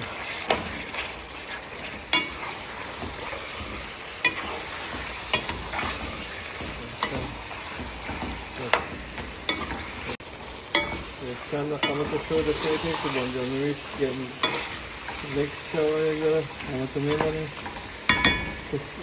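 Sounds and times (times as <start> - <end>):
food sizzling in oil: 0.0 - 19.0
spoon knocking against pot: 10.7 - 11.1, 18.1 - 18.7.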